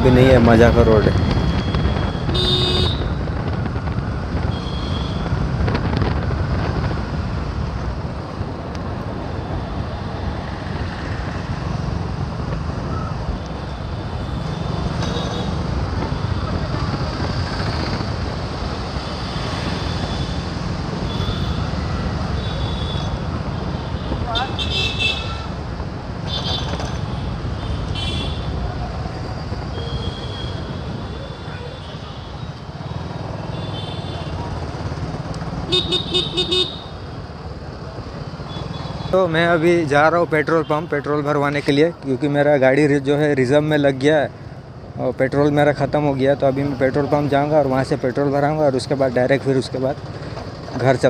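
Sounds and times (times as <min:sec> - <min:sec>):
wind rushing over microphone: 0:00.0 - 0:14.9, 0:15.5 - 0:22.4
road noise: 0:00.0 - 0:51.0
wind on microphone: 0:01.1 - 0:09.6
vehicle horn toots: 0:01.6 - 0:03.2, 0:35.7 - 0:36.9
motorcycle engine: 0:26.2 - 0:39.2.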